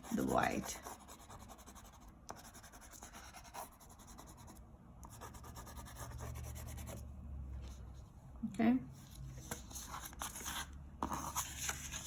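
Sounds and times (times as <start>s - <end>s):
crayon scratching on paper: 0.0s - 7.0s.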